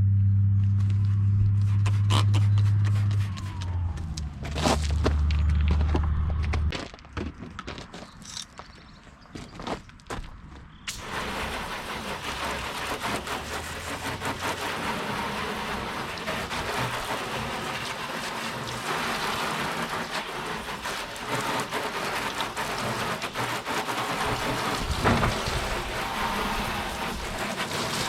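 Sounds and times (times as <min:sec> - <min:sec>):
water spraying on plastic: 0:01.5 - 0:05.6, 0:10.9 - 0:28.0.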